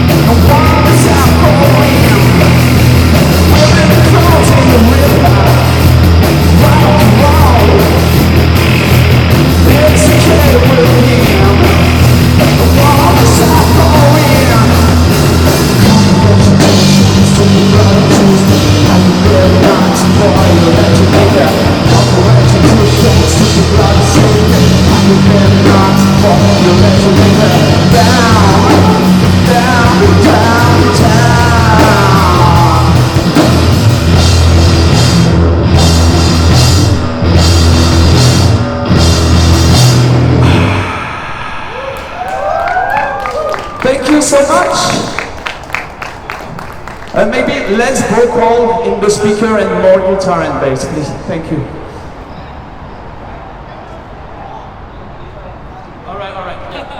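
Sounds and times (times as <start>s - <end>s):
bass guitar: 0.0s - 41.0s
drum kit: 0.0s - 41.0s
electric guitar: 0.0s - 43.8s.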